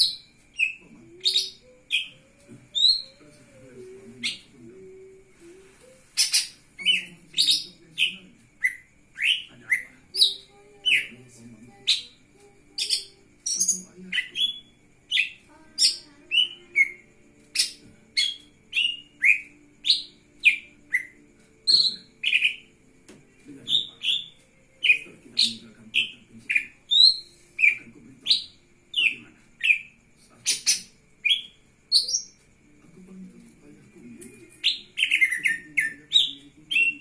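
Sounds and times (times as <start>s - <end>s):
bird singing sharp notes: 23.6s - 32.4s.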